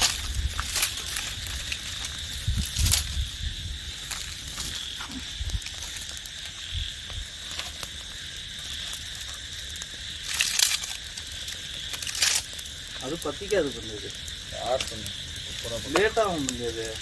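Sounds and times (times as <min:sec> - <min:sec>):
rustling: 0:00.0 - 0:06.3
insects trilling: 0:00.0 - 0:17.0.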